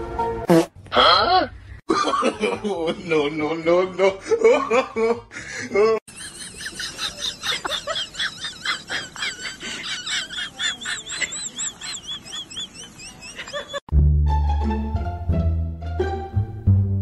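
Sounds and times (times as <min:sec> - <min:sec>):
plucked-string music with deep bass: 0:13.9 - 0:17.0.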